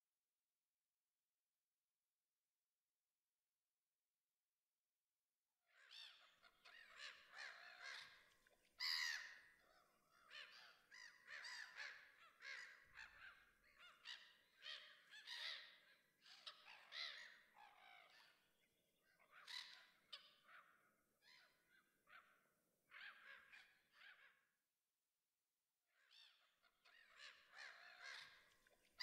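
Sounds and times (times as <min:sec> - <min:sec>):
birds giving harsh calls: 0:08.8 - 0:09.3.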